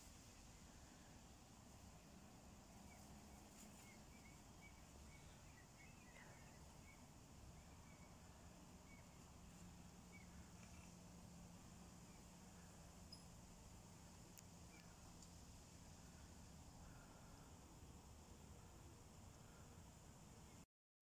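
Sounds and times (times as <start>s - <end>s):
faint bird chirps: 0.0s - 15.1s
low steady hum: 0.0s - 20.6s.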